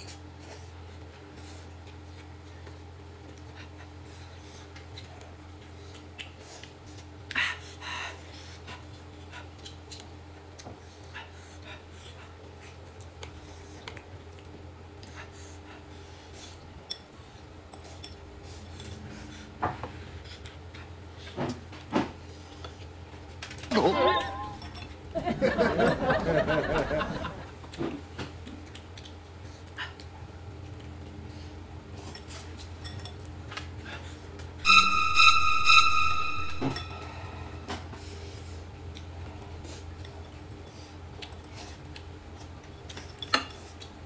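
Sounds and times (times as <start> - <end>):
utensils clinking against plates: 23.7 - 25.0, 32.0 - 33.7
low hum: 34.6 - 39.0.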